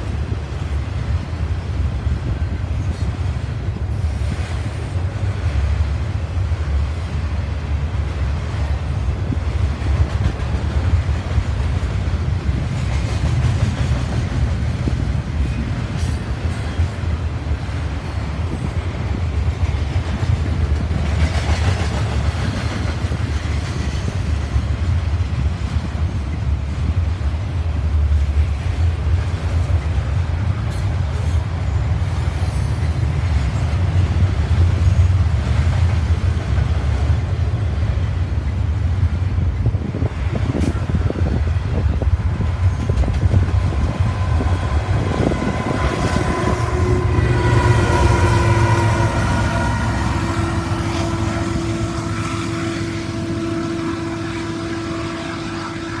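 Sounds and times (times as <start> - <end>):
train cars clattering over rails: 0.0 - 51.1
locomotive engine whine: 38.3 - 56.0.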